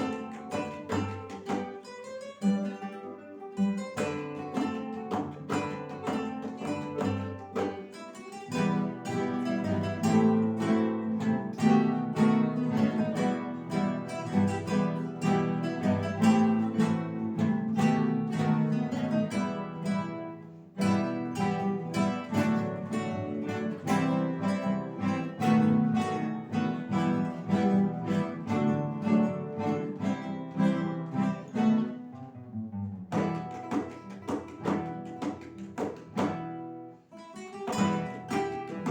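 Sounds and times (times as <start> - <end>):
acoustic guitar ensemble playing: 0.0 - 38.9.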